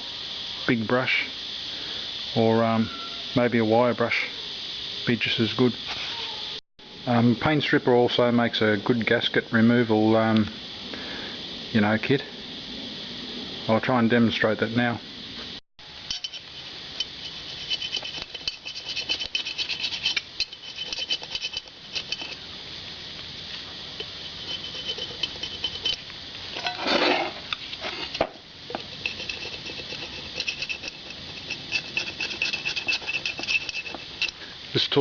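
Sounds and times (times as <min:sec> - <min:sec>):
scraper scratching gasket: 0:17.2 - 0:22.4, 0:24.1 - 0:26.0, 0:28.8 - 0:34.4.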